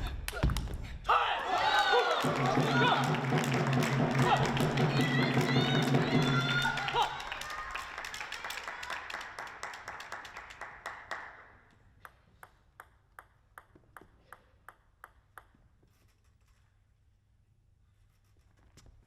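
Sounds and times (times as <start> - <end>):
applause: 1.4 - 11.7
table tennis ball bouncing: 12.4 - 15.7.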